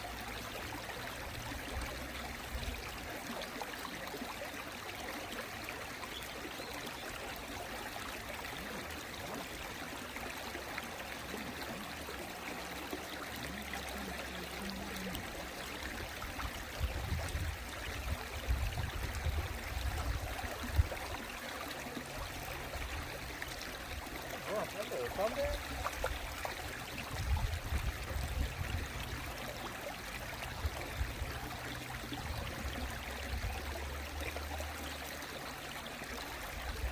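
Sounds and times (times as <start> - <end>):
stream water flowing: 0.0 - 36.9.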